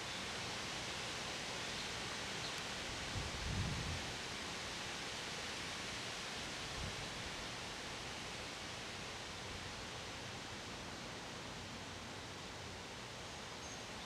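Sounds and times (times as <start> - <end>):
wind rustling leaves: 0.1 - 5.0.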